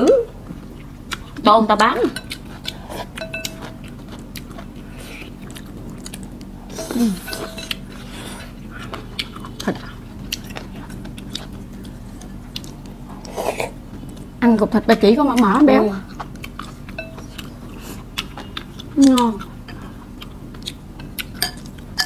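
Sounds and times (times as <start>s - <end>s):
people chewing and eating: 0.0s - 22.0s
chopsticks clicking on bowls: 2.1s - 4.6s, 20.5s - 21.8s
person humming mm: 6.7s - 7.4s.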